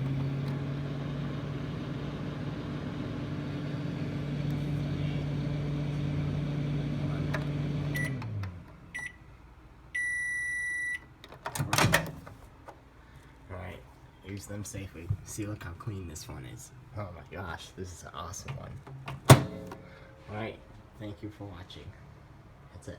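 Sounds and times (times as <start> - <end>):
microwave oven humming: 0.0 - 12.3, 18.9 - 20.9
microwave beeps: 7.9 - 8.3, 8.9 - 9.2, 9.9 - 11.1
loud clunk: 19.1 - 20.0.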